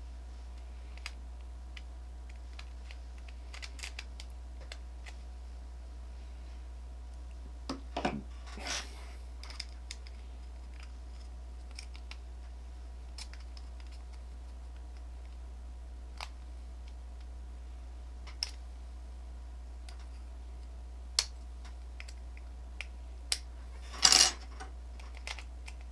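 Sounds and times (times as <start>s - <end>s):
steady low hum: 0.0s - 25.9s
plastic parts clicking and tapping: 1.8s - 5.2s, 24.1s - 25.9s
short scrape: 8.5s - 9.1s.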